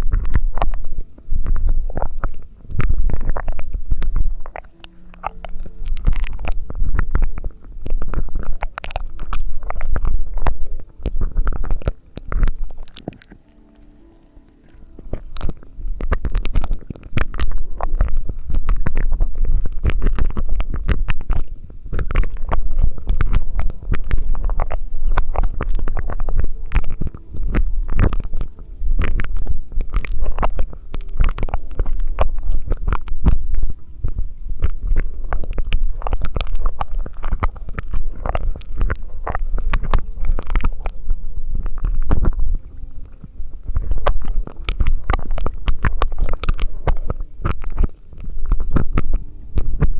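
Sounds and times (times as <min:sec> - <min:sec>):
wet mouth clicks and pops: 0:00.0 - 0:14.0, 0:14.6 - 0:49.9
low rumble: 0:00.0 - 0:49.9.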